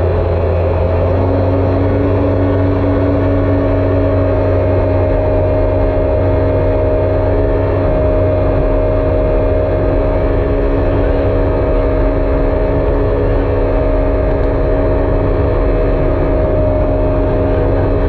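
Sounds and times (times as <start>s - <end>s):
jet ski engine running: 0.0s - 18.0s.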